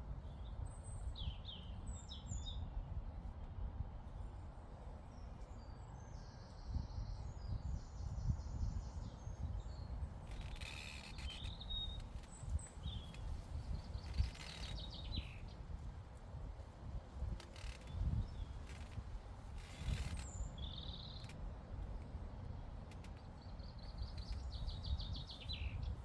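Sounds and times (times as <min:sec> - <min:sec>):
small birds chirping: 0:05.1 - 0:15.9, 0:19.6 - 0:21.4, 0:22.9 - 0:26.0
wind buffeting microphone: 0:06.6 - 0:10.6, 0:11.2 - 0:26.0.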